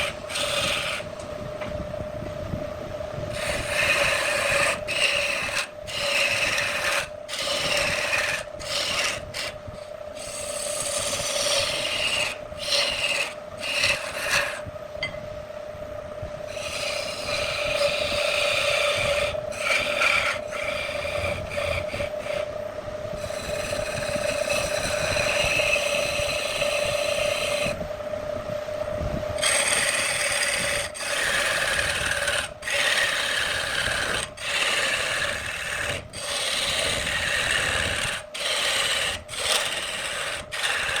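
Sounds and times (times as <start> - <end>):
tool cutting spinning wood: 0.0 - 1.3, 3.3 - 15.2, 16.4 - 27.9, 29.3 - 41.0
wood lathe humming: 0.0 - 1.3, 3.3 - 15.2, 16.4 - 27.9, 29.4 - 41.0.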